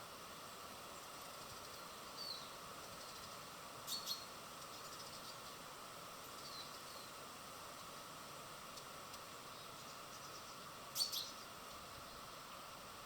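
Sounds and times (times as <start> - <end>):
steady hiss: 0.0 - 13.0
high falling bird chirps: 9.5 - 11.5.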